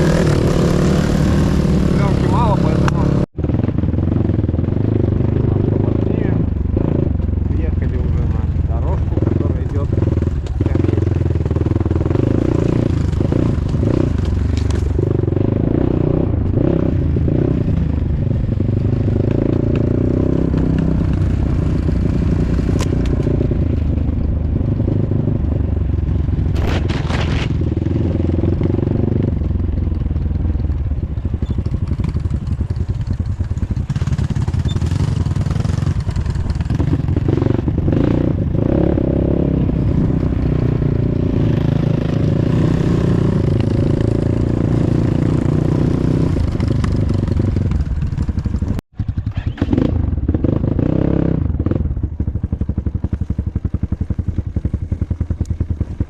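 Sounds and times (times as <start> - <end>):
off-road motorcycle engine: 0.0 - 56.0
clatter and scraping: 12.3 - 15.2, 26.4 - 27.9.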